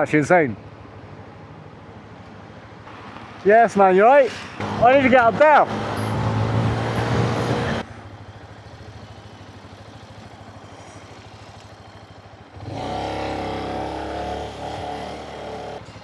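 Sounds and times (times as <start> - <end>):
motorcycle engine running: 7.2 - 16.0.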